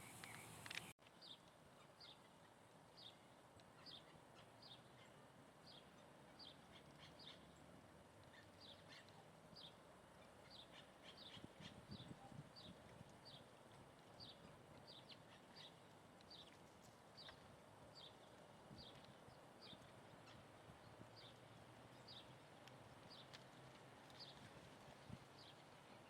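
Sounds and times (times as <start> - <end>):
steady background hiss: 0.0 - 11.6.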